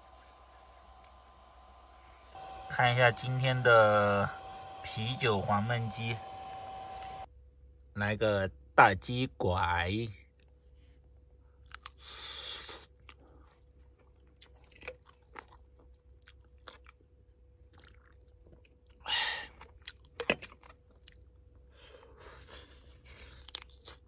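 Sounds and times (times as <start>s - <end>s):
person chewing chicken: 11.5s - 24.0s.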